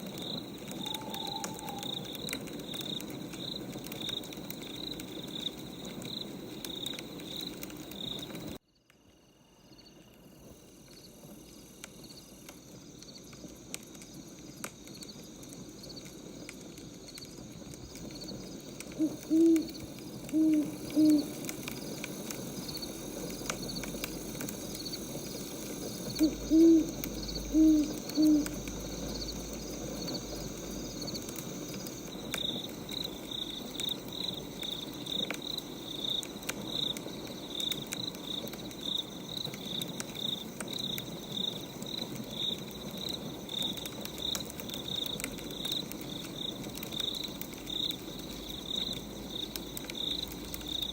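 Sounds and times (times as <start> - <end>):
wood fire crackling: 0.0 - 8.6, 10.0 - 50.9
cricket chirping: 0.0 - 50.9
owl hooting: 0.6 - 2.4, 18.9 - 21.5, 26.0 - 29.1.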